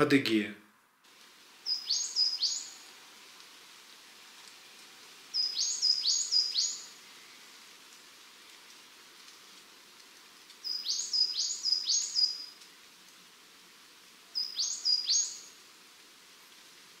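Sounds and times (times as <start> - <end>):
faint outdoor hiss: 0.0 - 17.0
small bird whistling call: 1.7 - 2.8, 5.4 - 6.9, 10.6 - 12.5, 14.4 - 15.5.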